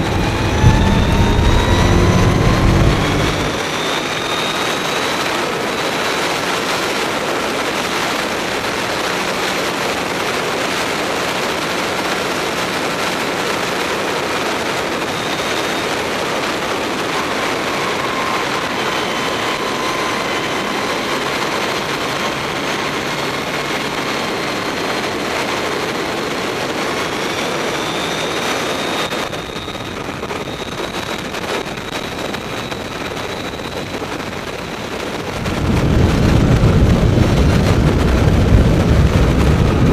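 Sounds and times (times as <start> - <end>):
electric motor whine: 0.0 - 4.6, 16.7 - 25.3
wind and road noise: 0.0 - 39.9.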